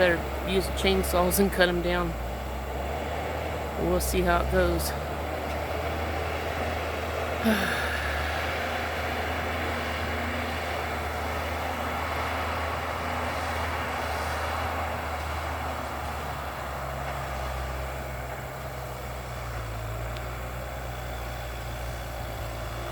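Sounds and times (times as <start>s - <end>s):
distant bulldozer engine rumble: 0.0s - 22.9s.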